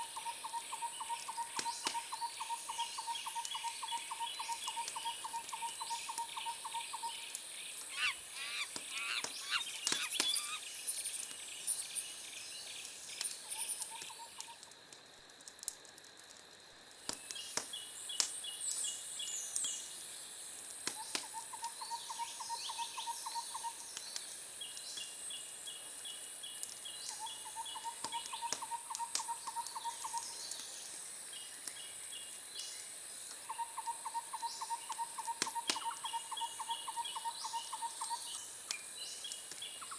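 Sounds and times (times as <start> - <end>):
birds chirping: 7.7 - 10.8
sharp clicks: 8.7 - 10.5.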